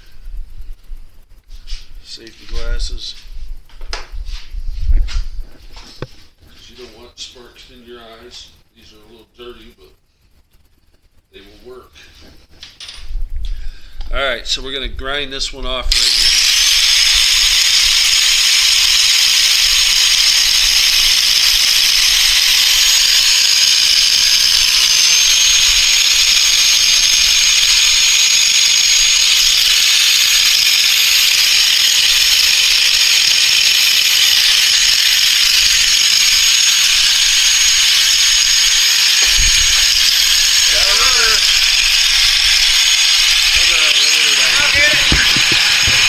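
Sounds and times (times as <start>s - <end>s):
grinder grinding metal: 15.7s - 46.0s.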